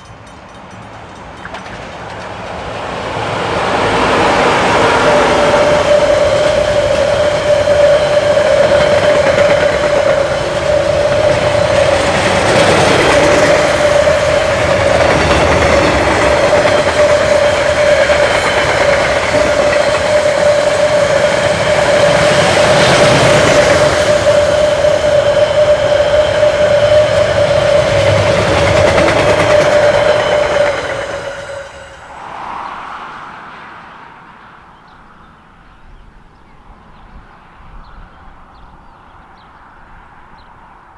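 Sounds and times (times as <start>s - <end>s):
train wheels clicking over rails: 0.0s - 32.2s
steady train whine: 0.0s - 34.7s.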